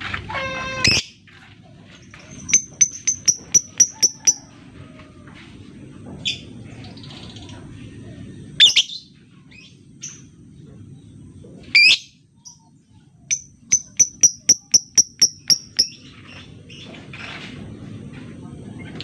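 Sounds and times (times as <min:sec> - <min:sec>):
lovebird chirping: 0:02.3 - 0:04.4, 0:13.3 - 0:16.8.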